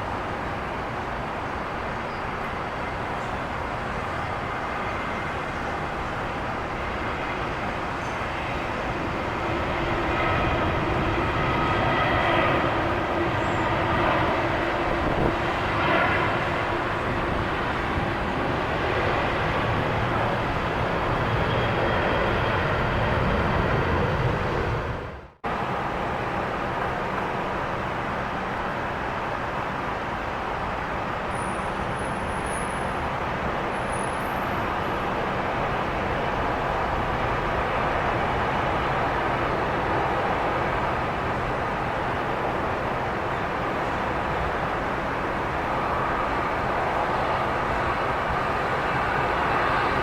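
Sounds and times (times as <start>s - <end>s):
jet engines of passing airliner: 0.0s - 50.0s.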